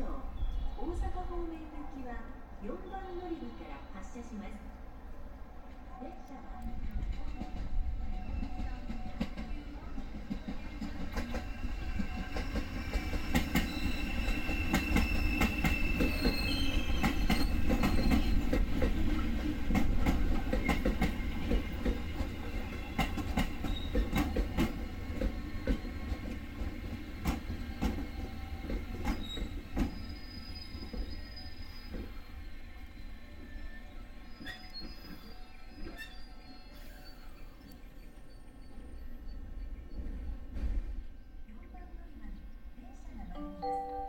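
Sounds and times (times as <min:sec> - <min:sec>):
train rumble: 0:00.0 - 0:43.9
high wheel squeals: 0:13.6 - 0:18.5, 0:33.5 - 0:39.7.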